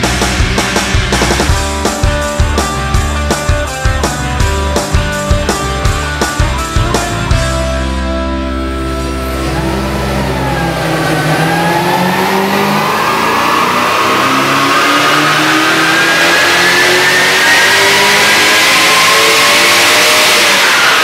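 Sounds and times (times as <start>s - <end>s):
high rising whine: 0.0s - 21.0s
car engine revving up: 8.5s - 21.0s.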